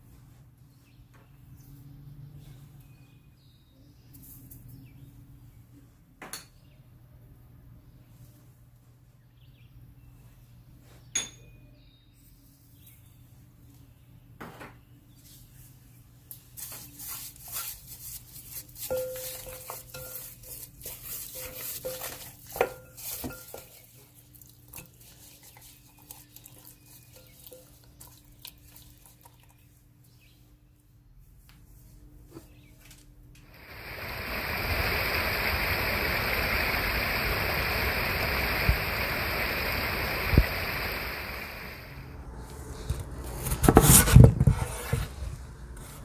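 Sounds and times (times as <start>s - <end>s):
utensils clinking against dishes: 18.8s - 24.0s.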